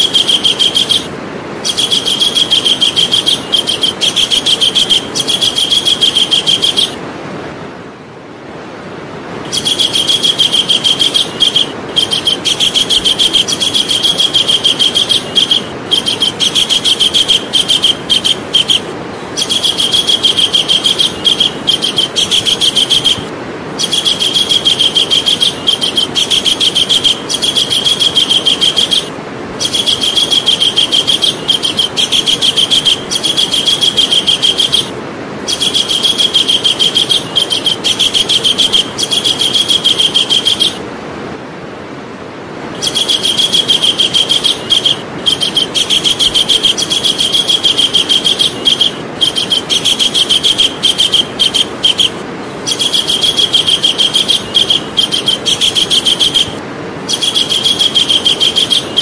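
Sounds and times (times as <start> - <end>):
bird calling in fast trills: 0.0 - 7.0, 9.4 - 40.9, 42.6 - 59.0
steady hiss: 0.0 - 59.0.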